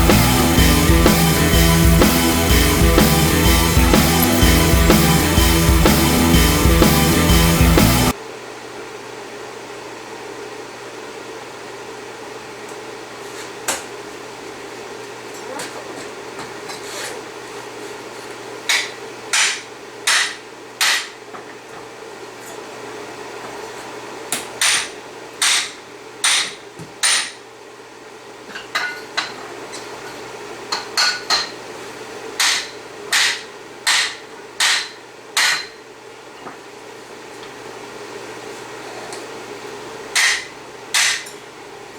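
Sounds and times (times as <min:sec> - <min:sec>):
hammer striking steel: 0:00.0 - 0:08.1, 0:18.7 - 0:21.2, 0:24.6 - 0:27.4, 0:32.4 - 0:35.8, 0:40.2 - 0:41.4.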